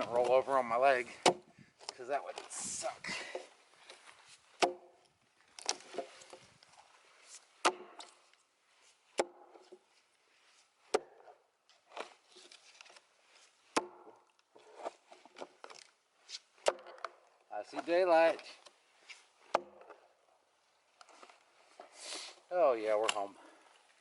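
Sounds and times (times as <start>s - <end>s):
heavy blows splitting a log: 1.1s - 2.5s, 3.2s - 6.9s, 7.6s - 8.3s, 9.1s - 9.9s, 10.8s - 18.7s, 19.4s - 20.2s.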